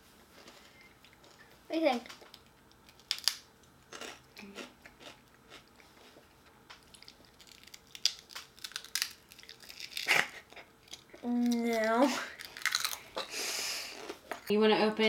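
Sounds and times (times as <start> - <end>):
chips being bitten and chewed: 2.3 - 6.2, 6.8 - 13.0.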